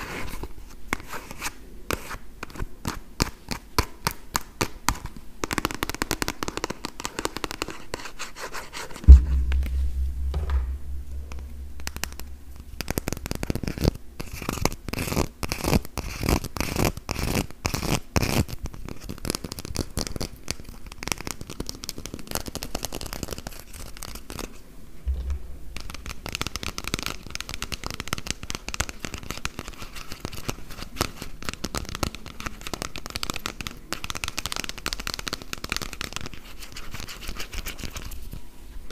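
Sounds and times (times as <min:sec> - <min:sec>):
loud low thump: 0:09.1 - 0:13.4, 0:25.1 - 0:26.8
low rumble: 0:09.1 - 0:13.6, 0:25.1 - 0:26.8.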